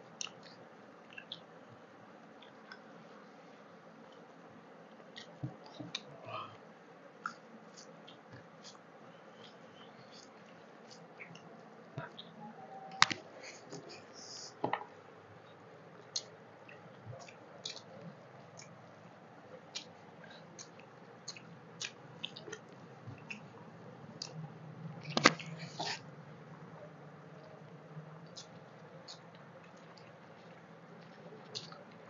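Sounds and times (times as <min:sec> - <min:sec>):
person chewing food: 0:19.6 - 0:23.5.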